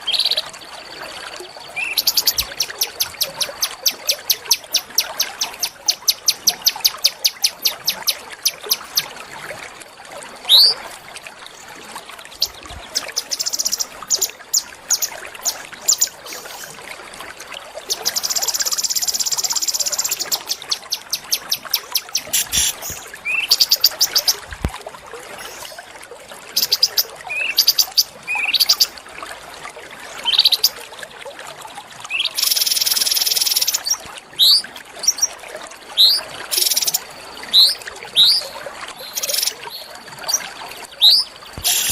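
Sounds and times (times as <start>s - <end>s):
buzzing bird trills: 20.6s - 23.0s
sharp high bird chips: 41.6s - 41.9s.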